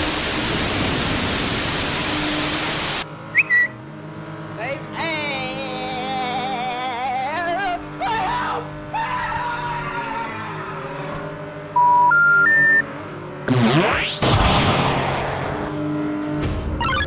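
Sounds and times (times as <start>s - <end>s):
static-like hiss burst: 0.0s - 3.0s
warbling tone: 13.5s - 15.8s.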